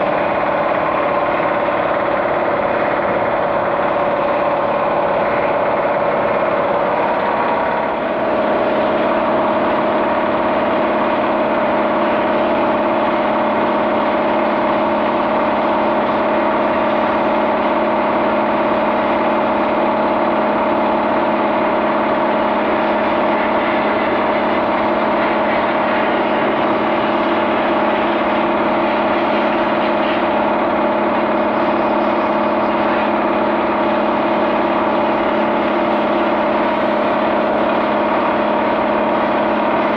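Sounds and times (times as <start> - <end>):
motor humming: 0.0 - 19.4.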